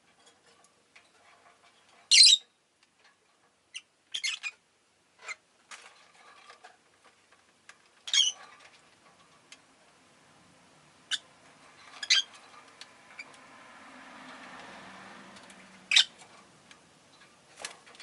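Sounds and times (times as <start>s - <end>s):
lovebirds chirping: 2.1s - 2.4s, 11.0s - 12.4s, 15.9s - 16.2s.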